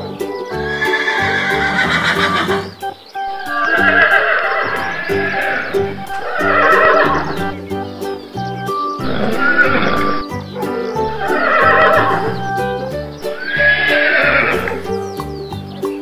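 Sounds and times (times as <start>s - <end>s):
background music with steady beat: 0.0s - 16.0s
horse whinnies: 0.7s - 7.5s, 9.0s - 10.2s, 11.0s - 12.6s, 13.3s - 15.0s.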